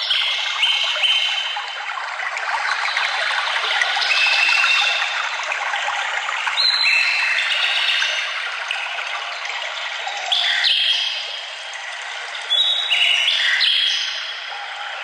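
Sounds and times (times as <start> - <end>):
brook running: 0.0 - 15.0
birds singing whistled notes: 6.6 - 8.3, 12.5 - 14.9.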